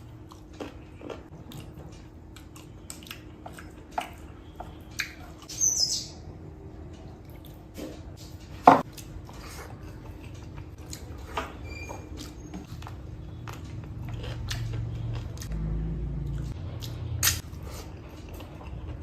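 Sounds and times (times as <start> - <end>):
wet chewing clicks and smacks: 0.3 - 5.5.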